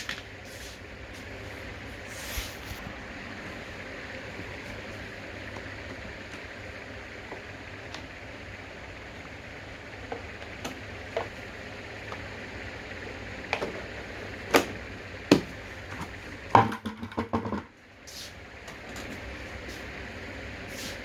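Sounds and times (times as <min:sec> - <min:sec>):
hard objects knocking and clacking: 0:15.3 - 0:17.7.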